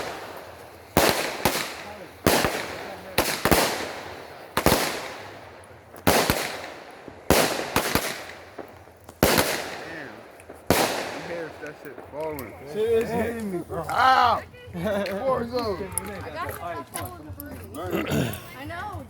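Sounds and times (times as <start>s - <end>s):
fireworks bangs with echo: 0.0s - 12.4s.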